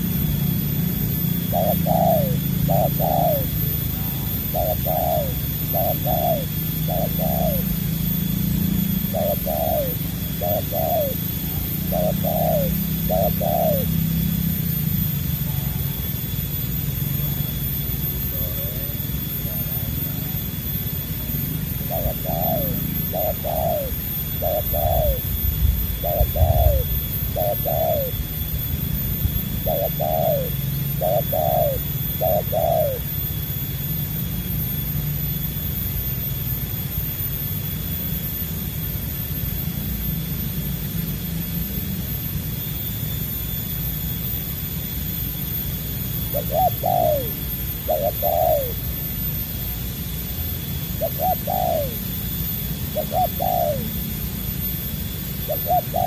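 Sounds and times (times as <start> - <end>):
dove cooing: 0.0 - 33.8, 45.7 - 56.0.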